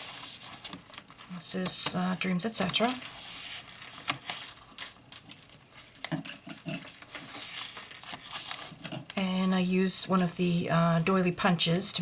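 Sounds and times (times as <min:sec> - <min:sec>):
paper pages rustling: 0:00.0 - 0:09.2.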